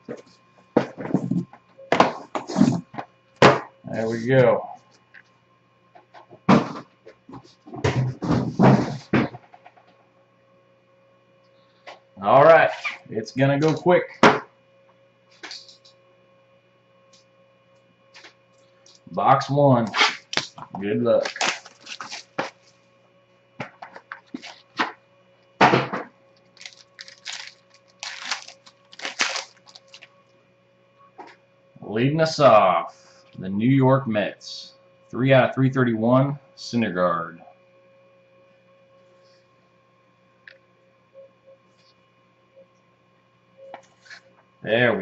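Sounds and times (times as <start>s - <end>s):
packaging crinkling: 20.1s - 22.8s, 26.3s - 30.1s.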